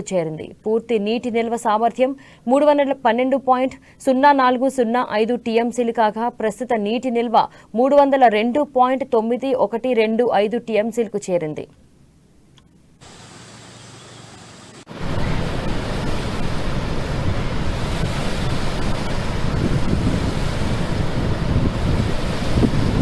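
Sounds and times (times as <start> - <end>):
faint hiss: 13.0 - 23.0
flood water rushing from a dam: 14.9 - 23.0.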